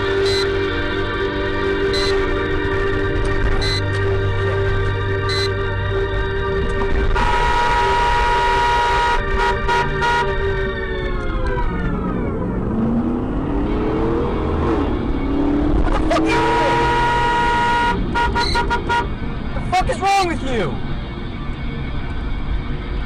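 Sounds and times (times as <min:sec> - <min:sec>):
car horn blast: 0:00.0 - 0:00.8, 0:01.8 - 0:02.5, 0:03.5 - 0:04.0, 0:05.2 - 0:05.7, 0:07.0 - 0:10.6, 0:16.2 - 0:19.1.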